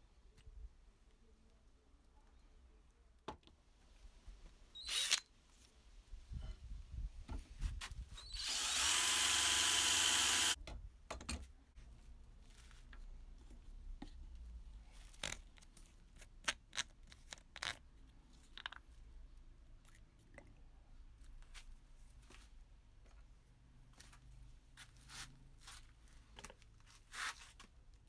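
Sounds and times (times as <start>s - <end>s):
power drill running: 4.8s - 5.2s, 8.2s - 10.6s.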